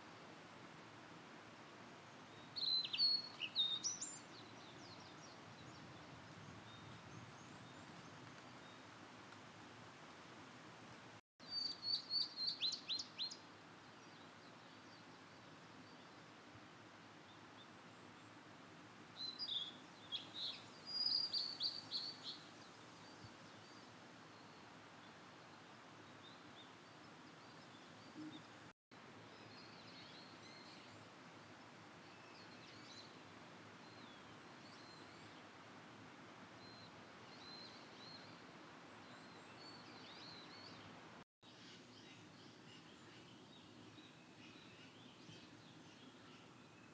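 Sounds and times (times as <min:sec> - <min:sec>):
steady low hiss: 0:00.0 - 0:46.9
faint bird chirps: 0:02.3 - 0:08.9, 0:19.2 - 0:28.7.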